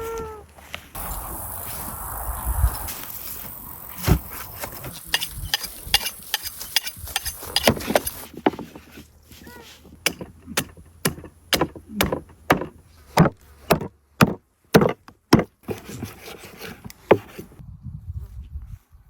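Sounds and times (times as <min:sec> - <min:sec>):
blade chopping into wood: 0:05.1 - 0:08.7, 0:10.0 - 0:16.0.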